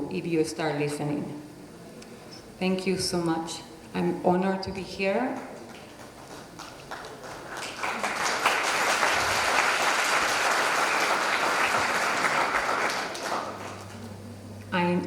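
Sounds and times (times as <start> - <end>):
audience applauding: 5.6 - 14.1.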